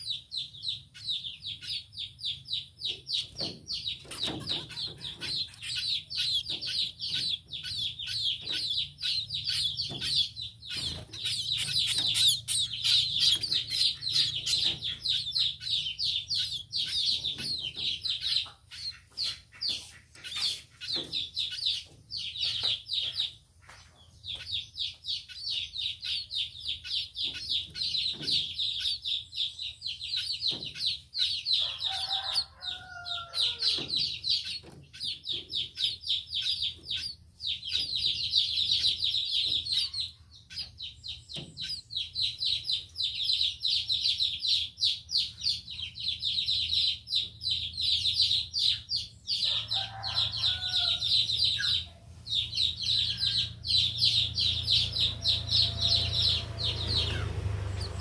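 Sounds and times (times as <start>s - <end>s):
munias chirping rapidly: 0.0s - 23.3s.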